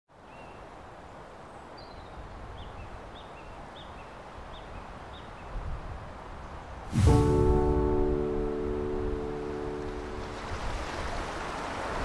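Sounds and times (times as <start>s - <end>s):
low rumble: 6.9s - 9.3s.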